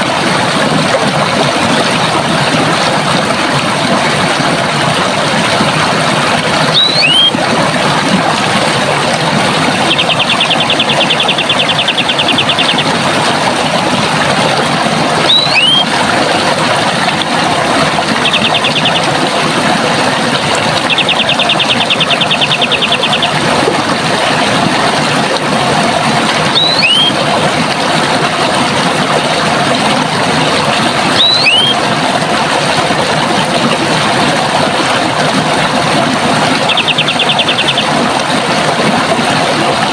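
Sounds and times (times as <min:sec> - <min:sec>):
running water rushing: 0:00.0 - 0:39.9
bird trilling: 0:06.7 - 0:07.3, 0:09.9 - 0:12.9, 0:15.3 - 0:15.9, 0:20.9 - 0:23.3, 0:26.5 - 0:27.2, 0:31.2 - 0:31.8, 0:36.6 - 0:37.9
two-note whistled bird call: 0:06.8 - 0:07.3, 0:15.3 - 0:15.9, 0:26.6 - 0:27.2, 0:31.2 - 0:31.8.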